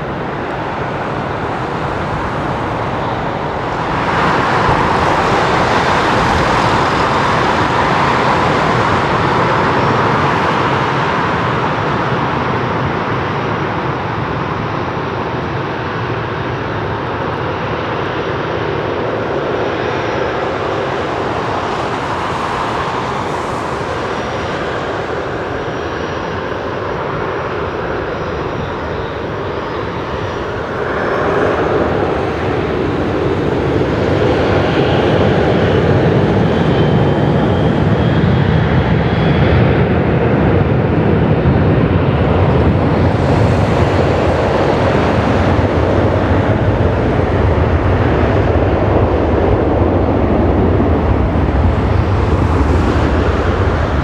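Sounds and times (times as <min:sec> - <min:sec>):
faint engine whine: 0:00.0 - 0:54.0
jet engines running: 0:00.0 - 0:54.0.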